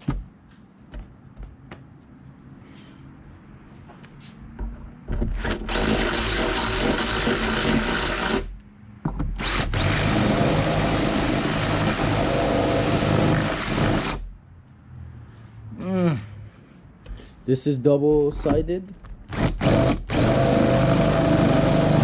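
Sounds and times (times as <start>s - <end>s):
power drill whining: 5.3s - 8.5s, 9.4s - 14.3s, 19.3s - 22.0s.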